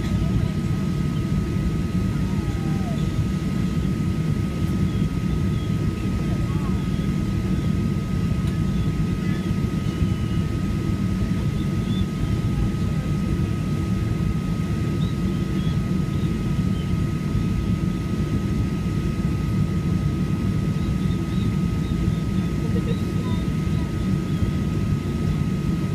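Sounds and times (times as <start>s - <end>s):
jet engine cabin rumble: 0.0s - 25.9s.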